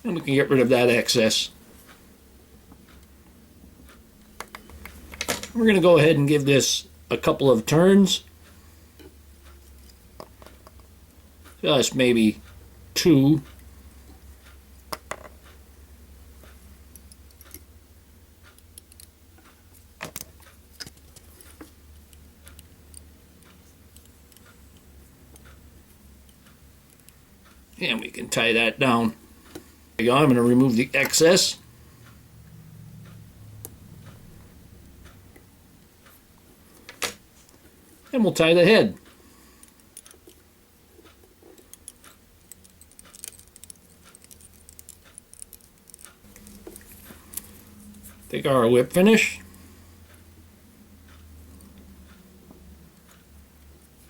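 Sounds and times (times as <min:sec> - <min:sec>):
low steady hum: 0:00.0 - 0:54.0
small tool clicks and taps: 0:41.0 - 0:47.5.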